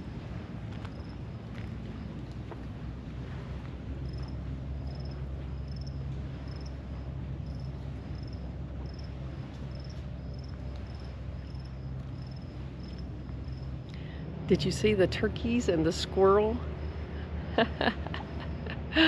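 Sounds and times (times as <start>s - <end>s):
low steady rumble: 0.0s - 19.0s
cricket chirping: 0.7s - 2.3s, 4.0s - 14.3s, 16.7s - 19.0s.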